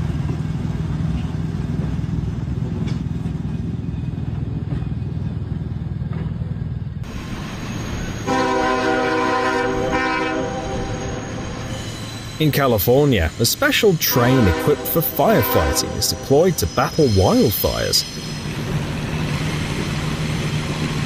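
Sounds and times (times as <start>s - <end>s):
train rumbling: 0.0s - 21.0s
train horn blast: 8.2s - 11.7s, 14.0s - 16.4s.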